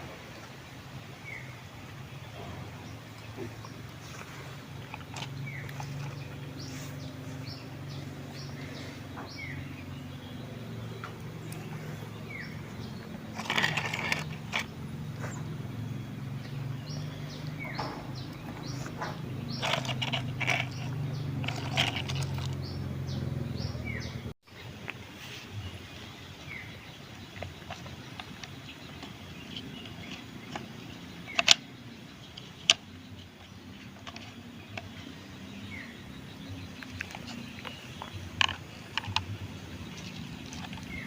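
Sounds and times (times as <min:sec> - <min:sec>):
small birds chirping: 0:00.2 - 0:41.0.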